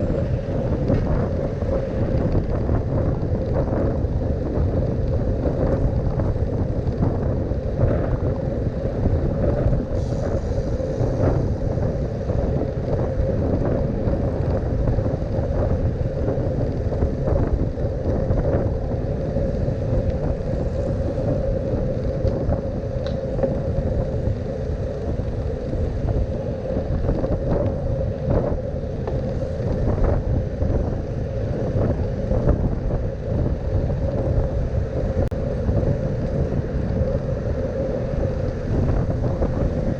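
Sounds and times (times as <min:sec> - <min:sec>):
bicycle knocks and rattles: 0:00.0 - 0:08.4
constant hum: 0:00.0 - 0:39.9
low road rumble: 0:00.0 - 0:39.9
wind buffeting microphone: 0:00.0 - 0:39.9.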